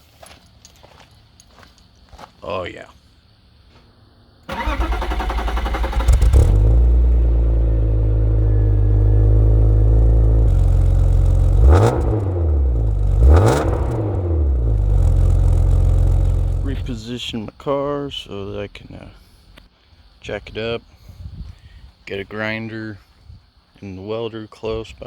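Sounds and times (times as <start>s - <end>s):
car engine idling and revving: 4.5s - 17.0s
car starter cranking: 4.5s - 17.0s.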